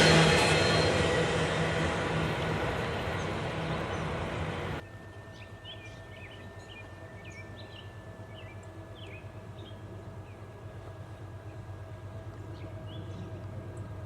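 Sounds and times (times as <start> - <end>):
train wheels on rail: 0.0 - 4.8
birds chirping: 0.0 - 13.5
thin steady whine: 0.0 - 14.0
faint steady hum: 3.8 - 14.0.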